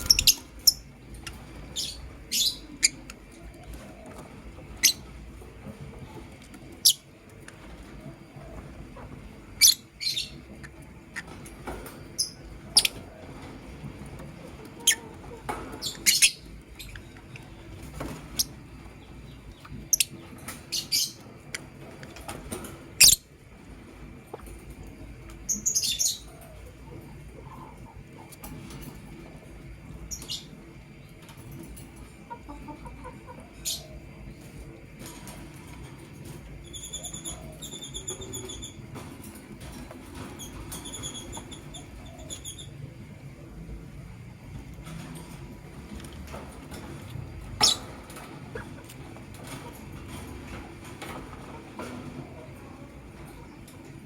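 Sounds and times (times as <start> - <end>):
lovebirds chirping: 0.0 - 3.4
steady low hum: 0.0 - 54.0.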